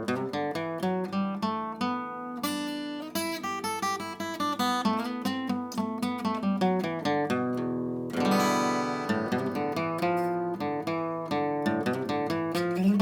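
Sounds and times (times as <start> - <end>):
acoustic guitar picking and strumming: 0.0 - 13.0.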